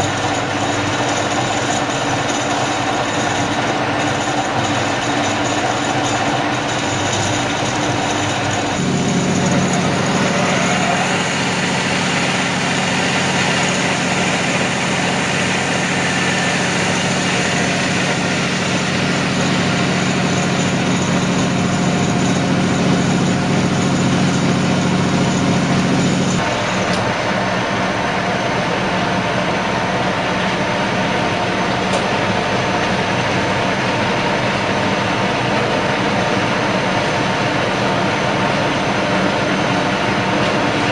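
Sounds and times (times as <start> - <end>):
drilling machine drone: 0.0 - 40.9.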